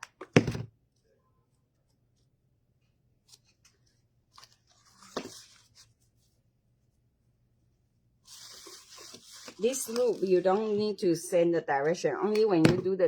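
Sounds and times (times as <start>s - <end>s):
ribbon rustling: 8.3s - 10.9s.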